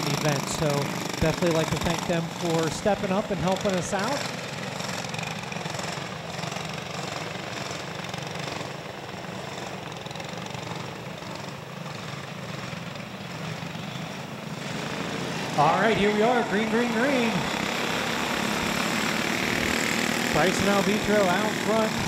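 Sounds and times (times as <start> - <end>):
go-kart engines running: 0.0 - 22.0.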